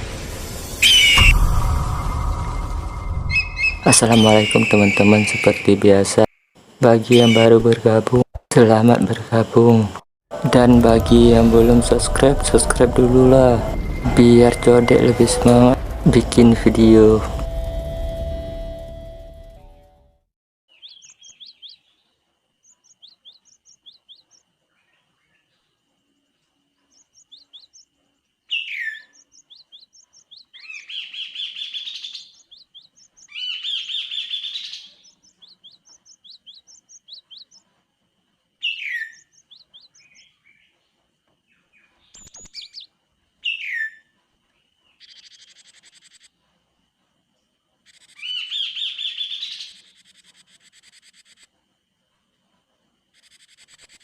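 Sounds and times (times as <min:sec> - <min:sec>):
faint high whine: 0:00.0 - 0:08.2, 0:08.8 - 0:20.1
bird singing whistles and trills: 0:00.8 - 0:01.5, 0:03.0 - 0:05.8, 0:07.1 - 0:07.6, 0:42.1 - 0:44.1.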